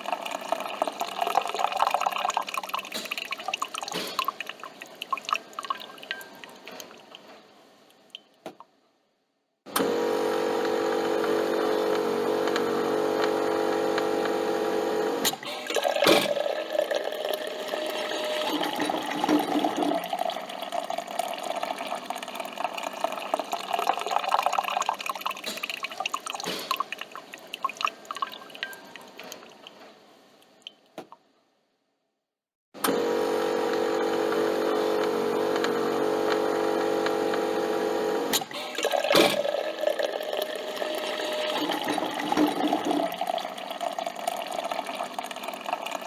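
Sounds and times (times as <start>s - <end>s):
coffee machine humming: 0.0s - 2.8s, 9.7s - 25.4s, 32.8s - 46.0s
coffee dripping into a cup: 0.0s - 7.3s, 15.5s - 29.7s, 38.4s - 46.0s.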